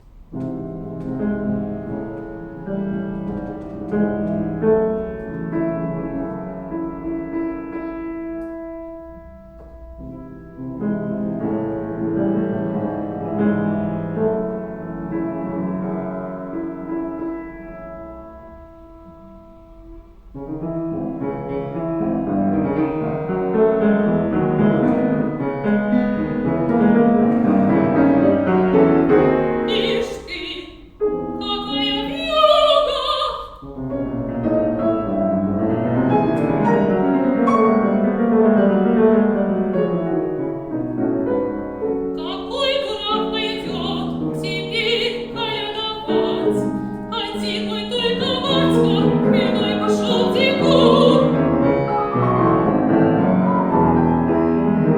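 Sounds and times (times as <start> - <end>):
piano accompaniment: 0.0 - 54.9
soprano singing: 28.4 - 33.9, 42.1 - 52.8.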